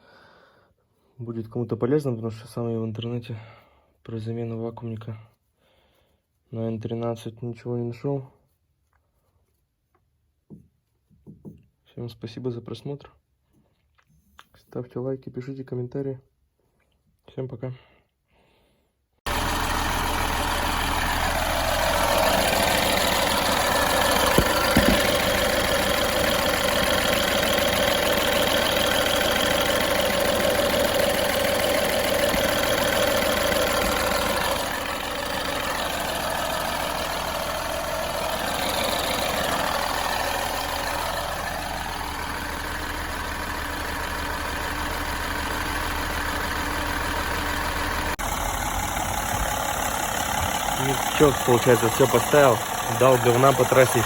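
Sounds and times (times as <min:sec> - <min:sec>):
car engine running: 0:19.3 - 0:54.0.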